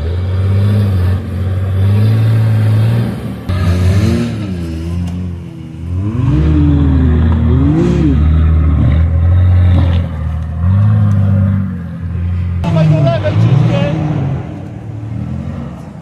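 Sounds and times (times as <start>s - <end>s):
off-road engine revving hard: 0.0s - 16.0s.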